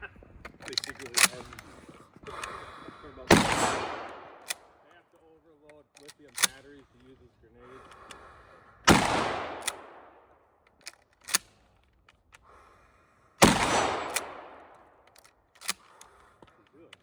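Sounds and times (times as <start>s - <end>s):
shotgun pump clacks: 0.4s - 2.7s, 3.3s - 4.8s, 5.7s - 7.1s, 7.8s - 12.6s, 13.4s - 17.0s
shotgun shots: 3.2s - 4.8s, 8.8s - 10.3s, 13.4s - 15.0s.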